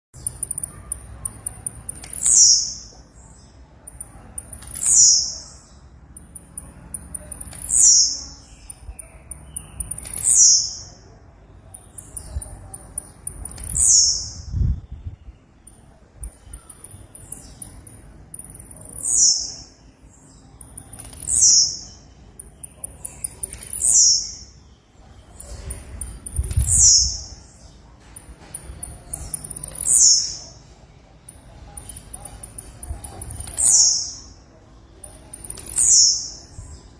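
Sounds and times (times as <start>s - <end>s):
bird singing buzzy phrases: 0.2s - 36.9s.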